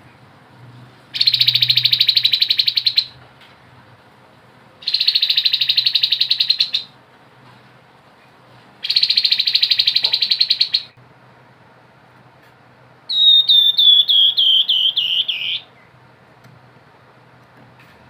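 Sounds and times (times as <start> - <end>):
bird singing rapid trills: 1.2 - 3.2, 4.8 - 7.0, 8.8 - 11.0, 13.1 - 15.9.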